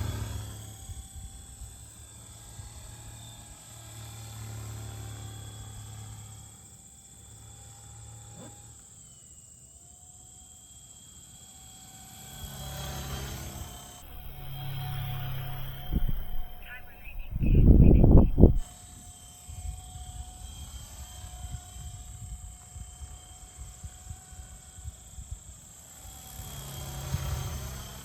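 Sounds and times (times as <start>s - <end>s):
rotor buzzing drone: 14.0s - 18.6s.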